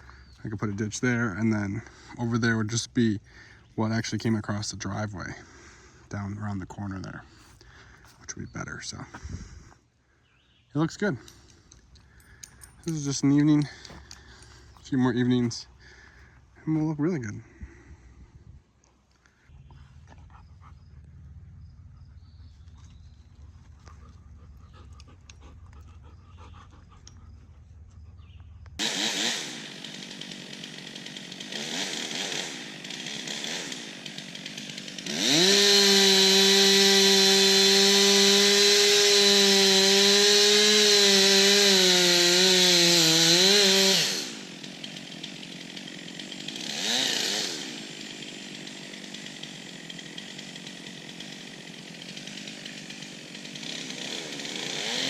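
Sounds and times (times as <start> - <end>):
chainsaw revving and cutting: 28.8 - 55.0.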